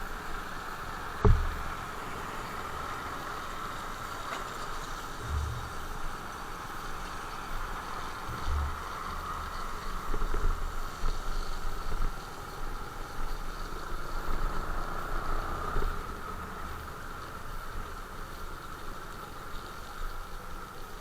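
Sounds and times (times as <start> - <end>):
motorcycle engine running: 1.2 - 1.7
low rumbling gusts: 5.0 - 11.1.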